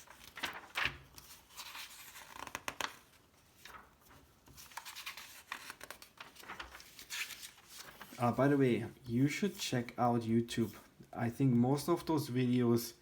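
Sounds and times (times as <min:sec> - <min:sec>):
magazine pages turning: 0:00.0 - 0:08.6.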